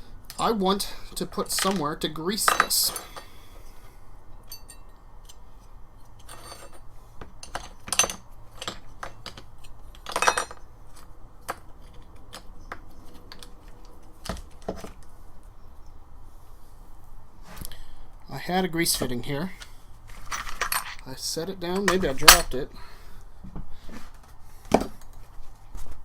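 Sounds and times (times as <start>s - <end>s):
small metal parts clinking: 4.3s - 5.4s, 6.1s - 13.7s, 19.6s - 21.1s.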